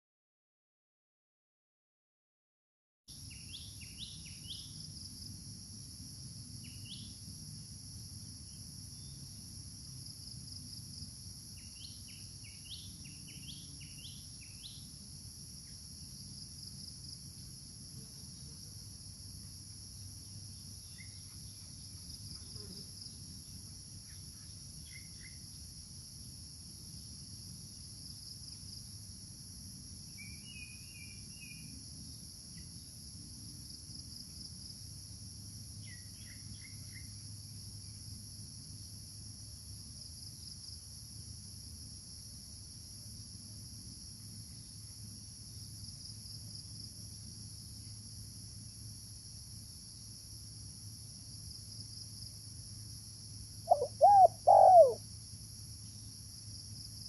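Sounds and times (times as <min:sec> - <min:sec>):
insects droning: 0:03.1 - 0:57.0
small birds chirping: 0:53.7 - 0:55.0.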